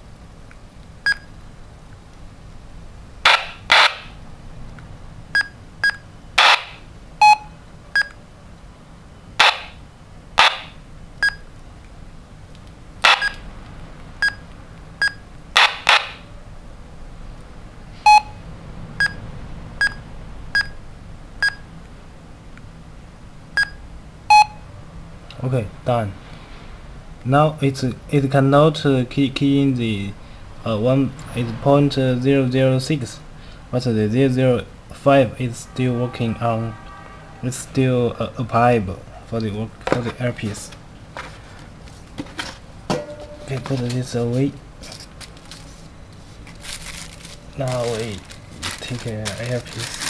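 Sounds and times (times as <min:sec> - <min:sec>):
walkie-talkie keypad beeps: 0:13.1 - 0:13.4, 0:24.3 - 0:24.6.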